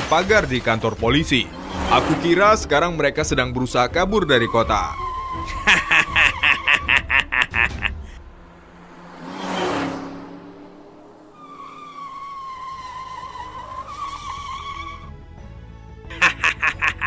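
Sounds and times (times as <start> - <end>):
cartoon car whoosh: 1.2 - 2.8, 5.7 - 14.3
tyre squeal: 11.4 - 15.2.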